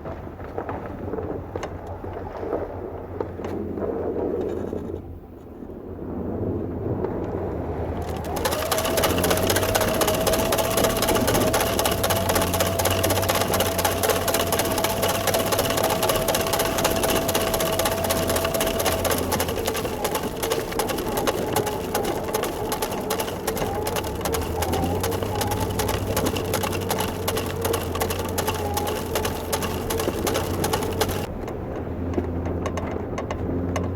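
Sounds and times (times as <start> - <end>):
small engine running: 7.8 - 33.9
whining tone: 8.0 - 31.3.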